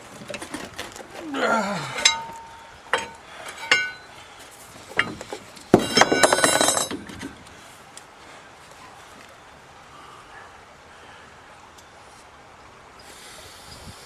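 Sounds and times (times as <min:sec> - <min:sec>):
metal strikes ringing: 0:02.0 - 0:04.1
metallic clatter: 0:02.0 - 0:04.1, 0:04.9 - 0:07.4.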